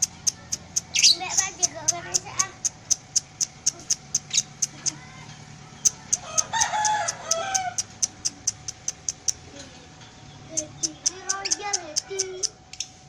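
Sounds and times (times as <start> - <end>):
lovebird chirping: 0.0 - 5.0, 10.2 - 13.0
rooster crowing: 6.2 - 7.9, 11.1 - 12.6.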